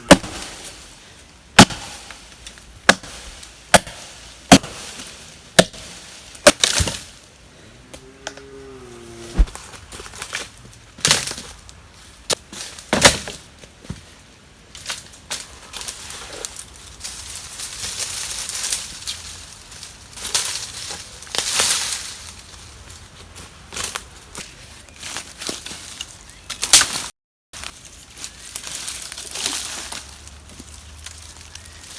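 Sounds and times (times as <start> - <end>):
wood being chopped: 0.0 - 0.6, 1.6 - 2.2, 2.8 - 7.1, 9.4 - 9.6
crunching and rustling: 8.0 - 31.9.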